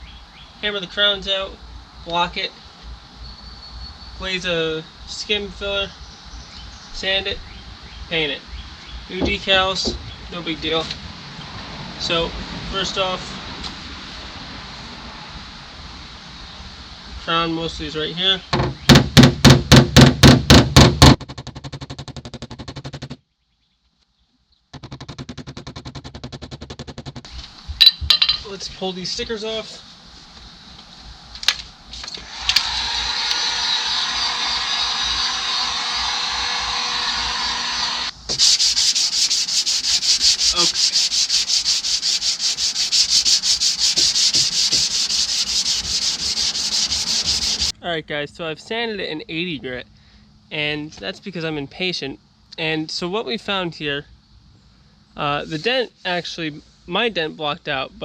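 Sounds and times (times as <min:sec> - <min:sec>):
sandpaper rasping on metal: 0:24.8 - 0:27.4, 0:38.3 - 0:47.7
whirring power tool: 0:32.1 - 0:38.1.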